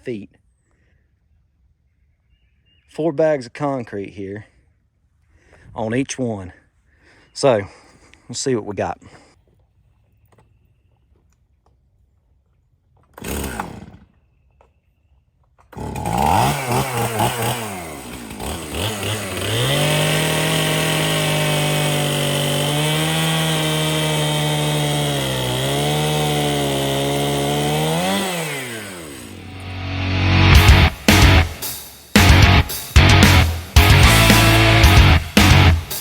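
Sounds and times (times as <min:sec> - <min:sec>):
chainsaw revving: 0:13.1 - 0:14.1, 0:15.7 - 0:36.0.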